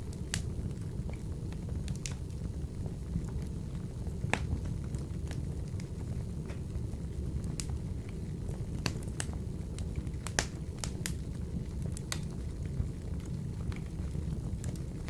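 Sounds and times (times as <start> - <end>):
low rumble of stove fire: 0.0 - 15.0
wood fire crackling and popping: 0.0 - 15.0.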